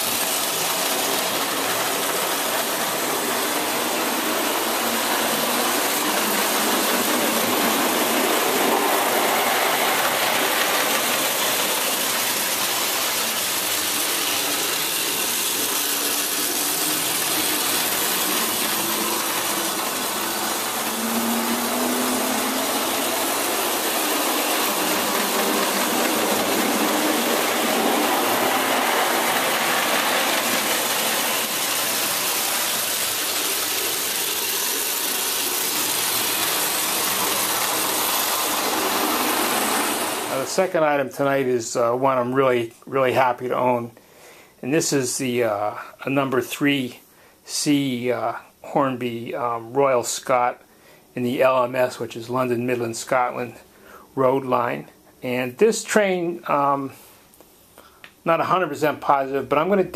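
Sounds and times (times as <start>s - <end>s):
toy locomotive motor whirring: 0.0s - 40.5s.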